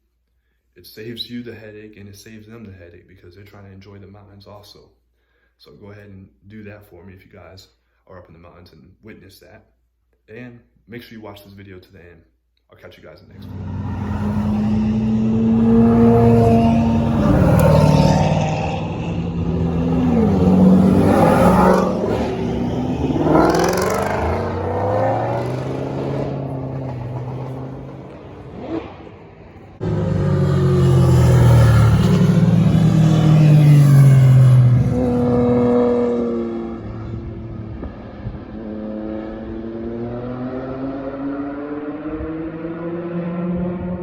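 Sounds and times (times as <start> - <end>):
cars accelerating past: 13.3 - 44.0.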